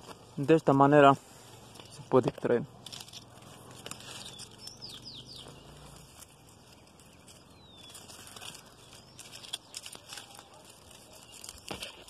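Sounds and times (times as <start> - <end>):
leafy branches rustling: 0.0 - 12.0
small bird chirping: 1.2 - 12.0.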